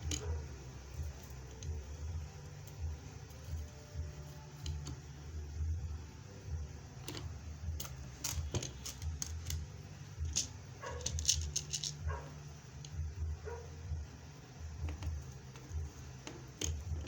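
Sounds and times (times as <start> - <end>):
low steady hum: 0.0 - 17.0
beads being handled: 7.2 - 12.1.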